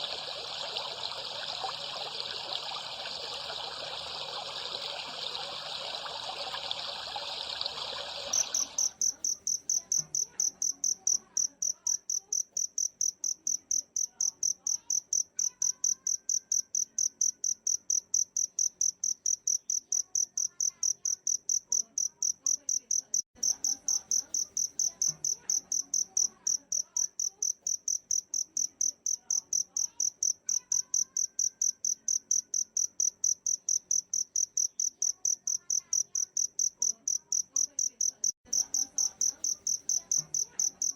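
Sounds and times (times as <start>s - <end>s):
water trickling: 0.0s - 9.1s
cricket chirping: 8.2s - 40.9s.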